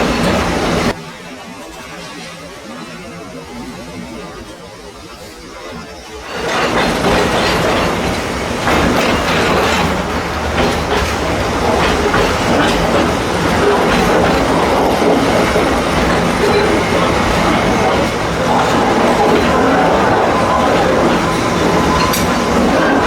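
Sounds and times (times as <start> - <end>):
train wheels clicking on track: 0.0 - 23.0
low drone: 5.8 - 23.0.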